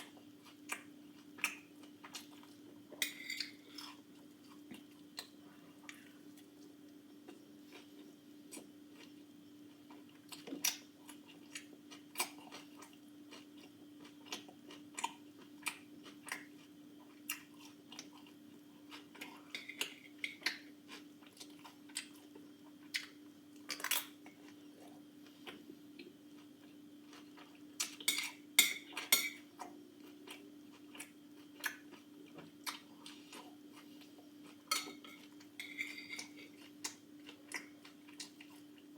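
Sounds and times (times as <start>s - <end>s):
chewing: 29.0s - 38.9s.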